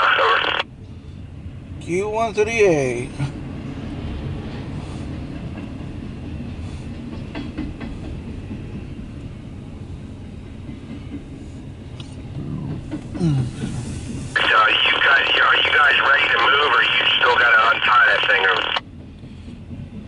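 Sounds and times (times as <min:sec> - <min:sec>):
freight train rumbling on rails: 0:00.0 - 0:20.0
train wheel clicks: 0:07.1 - 0:08.3.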